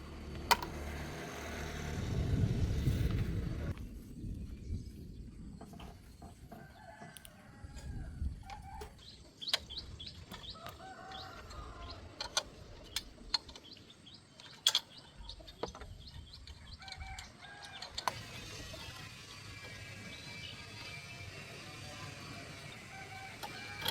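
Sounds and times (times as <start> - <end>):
sharp clicks or knocks: 0.3 - 1.0.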